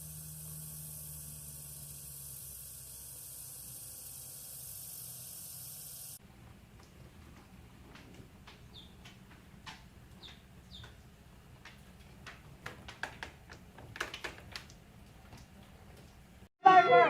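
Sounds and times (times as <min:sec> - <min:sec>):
light clicks and taps: 0:06.7 - 0:16.3.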